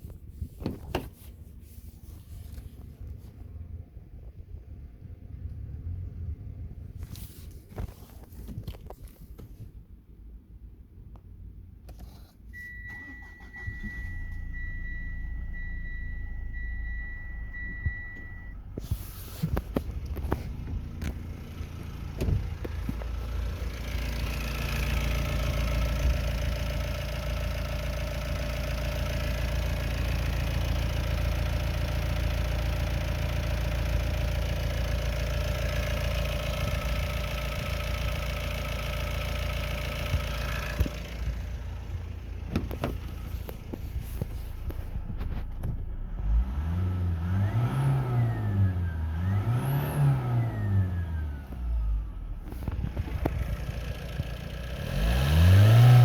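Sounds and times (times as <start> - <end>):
short beeps: 12.5 - 18.6
diesel engine starting and idling: 12.5 - 56.0.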